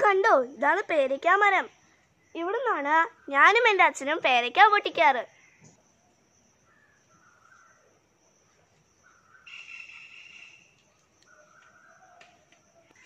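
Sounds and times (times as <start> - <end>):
distant birds calling: 6.5 - 13.0.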